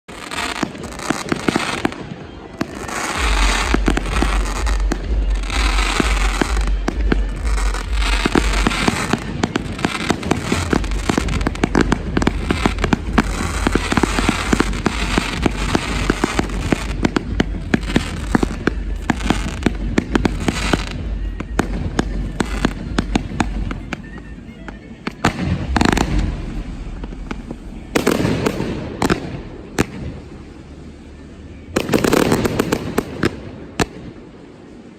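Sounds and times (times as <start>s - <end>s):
fireworks bangs and pops: 0.1s - 30.4s, 31.6s - 34.2s
music with steady bass line: 2.7s - 24.5s, 25.2s - 29.9s.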